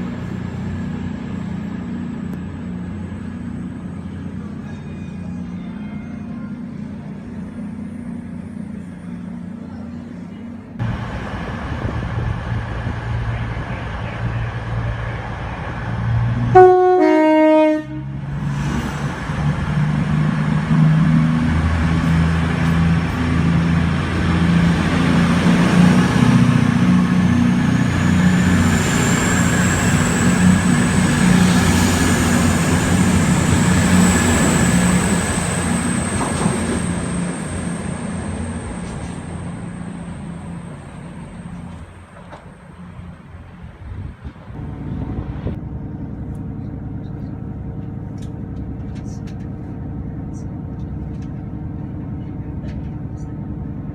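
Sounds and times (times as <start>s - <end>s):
track rumble: 0.0s - 53.9s
train engine drone: 0.0s - 53.9s
train two-tone horn: 4.7s - 6.6s, 16.5s - 18.2s.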